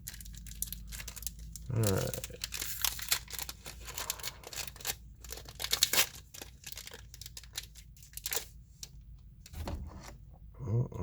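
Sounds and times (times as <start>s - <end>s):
wrapper crinkling and tearing: 0.0s - 8.6s.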